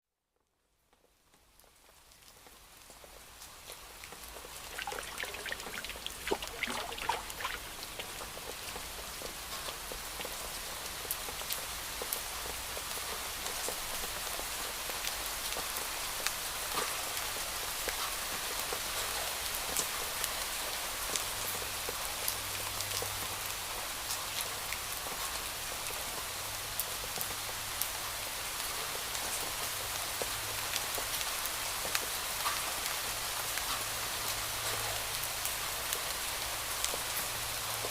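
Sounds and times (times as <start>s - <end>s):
raindrops ticking: 1.5s - 16.4s
rain hiss: 1.7s - 37.9s.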